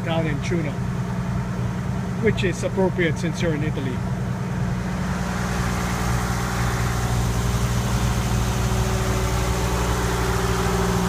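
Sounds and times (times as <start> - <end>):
marine diesel engine running: 0.0 - 11.0.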